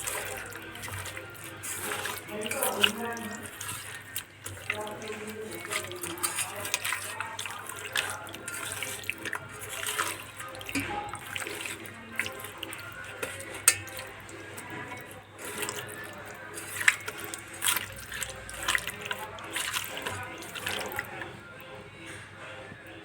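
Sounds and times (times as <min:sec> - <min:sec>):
water running into a sink: 0:00.0 - 0:21.3.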